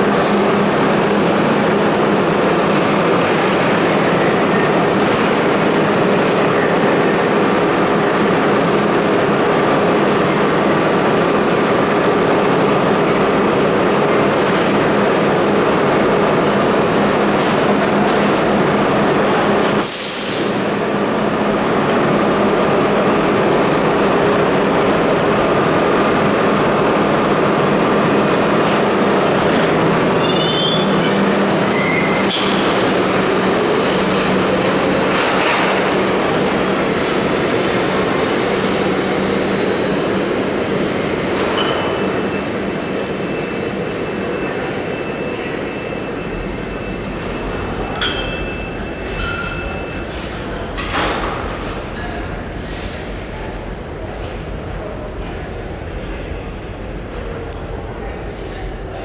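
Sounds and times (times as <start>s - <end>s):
subway train on tracks: 0.0s - 59.0s
high wheel squeals: 28.0s - 50.1s.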